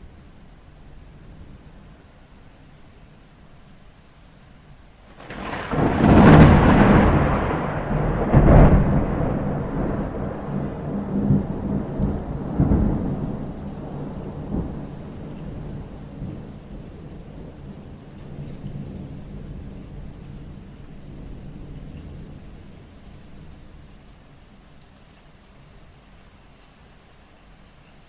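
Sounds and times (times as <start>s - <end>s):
steady rain: 0.0s - 28.0s
thunder rumbling and cracking: 5.1s - 22.7s.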